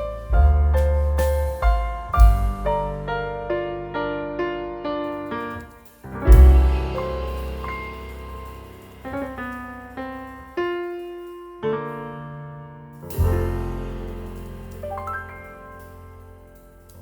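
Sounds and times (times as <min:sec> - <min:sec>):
deep bass note: 0:00.0 - 0:03.9, 0:06.2 - 0:10.4
piano single notes: 0:00.0 - 0:17.0.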